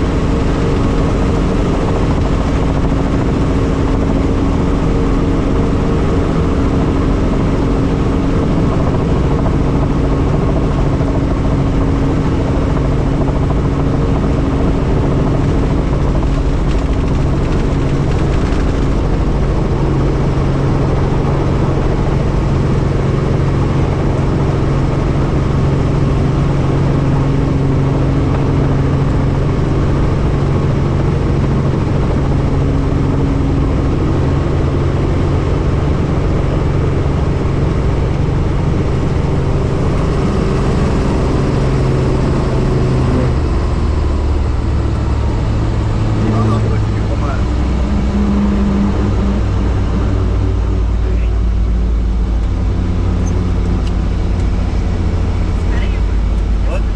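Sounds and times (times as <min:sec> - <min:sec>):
helicopter rotor and engine drone: 0:00.0 - 0:56.9.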